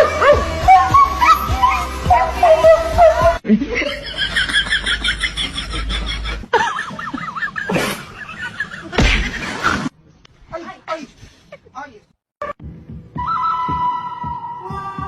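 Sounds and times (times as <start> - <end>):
wavering high voice-like sound: 0.7 - 3.4.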